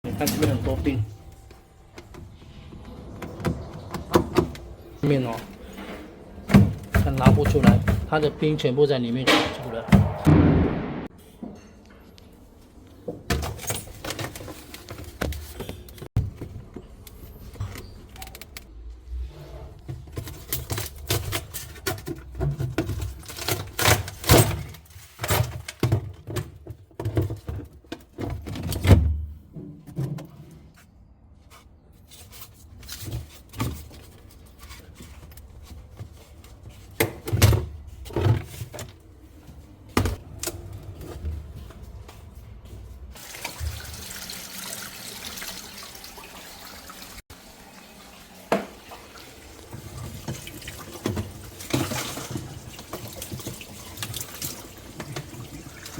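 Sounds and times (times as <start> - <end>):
knocks and clatter on freezer tray: 6.5 - 8.2, 20.2 - 30.4
loud bangs: 9.2 - 11.1.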